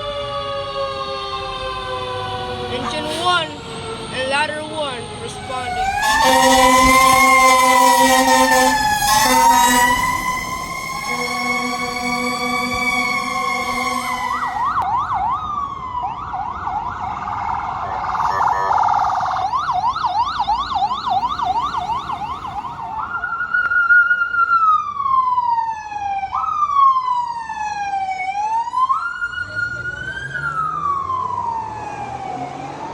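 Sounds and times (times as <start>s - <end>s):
electronic siren yelping and wailing: 0.7s - 14.9s
horn blast: 1.5s - 4.2s, 5.3s - 14.9s.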